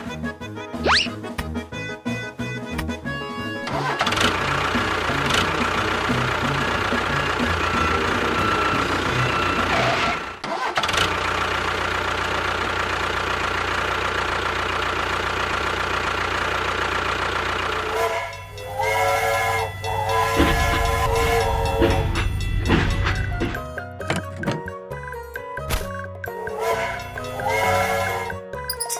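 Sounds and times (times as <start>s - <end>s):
model engine sound: 3.4s - 24.3s, 26.3s - 28.9s
tuneful jingle: 17.8s - 28.9s.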